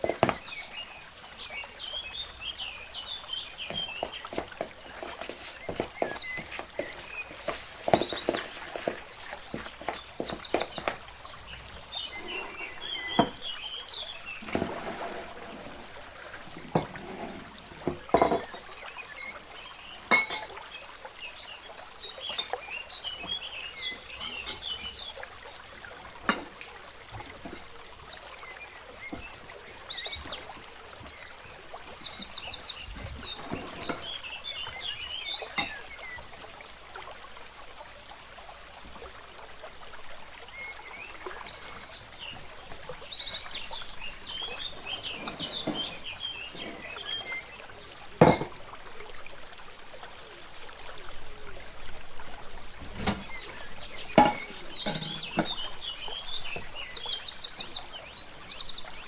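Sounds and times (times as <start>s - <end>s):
birds chirping: 0.0s - 39.0s, 40.3s - 59.0s
liquid pouring: 0.0s - 50.2s, 50.9s - 58.0s
kitchen utensils clicking: 17.8s - 19.4s, 20.1s - 20.6s, 22.3s - 25.1s, 41.4s - 47.4s, 52.8s - 55.8s.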